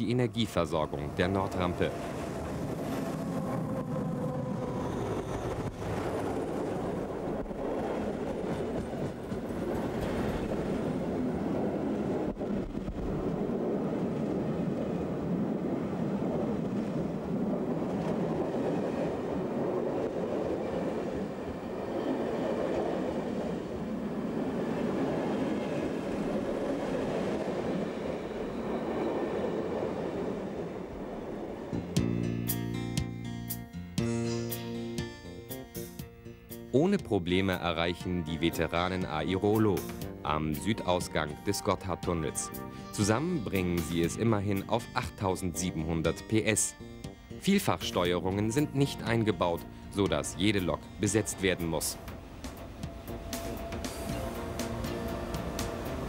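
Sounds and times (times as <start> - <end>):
train wheels rumbling on rails: 0.0 - 32.7, 47.0 - 56.0.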